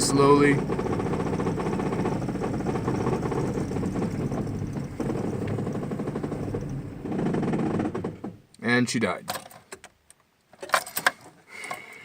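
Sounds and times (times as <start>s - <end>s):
pickup engine running and stalling: 0.0s - 8.5s.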